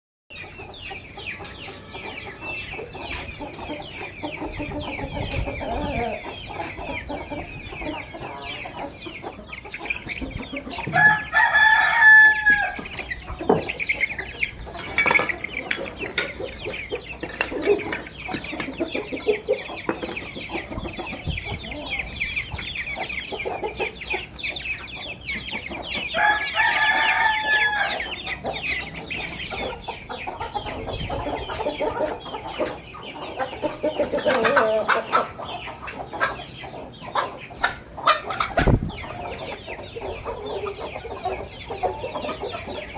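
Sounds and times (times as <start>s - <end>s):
chickens clucking: 0.3s - 42.9s
rooster crowing: 10.9s - 12.8s, 26.1s - 28.1s.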